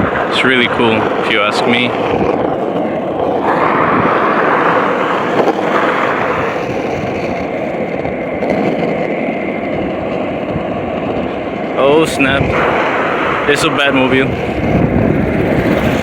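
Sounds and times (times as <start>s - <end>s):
road traffic rush: 0.0s - 16.0s.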